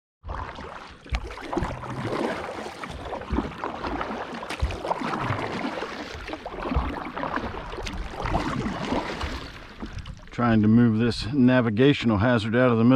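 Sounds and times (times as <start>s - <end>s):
water splashing around kayak: 0.2s - 10.9s
low thumps: 2.8s - 10.4s.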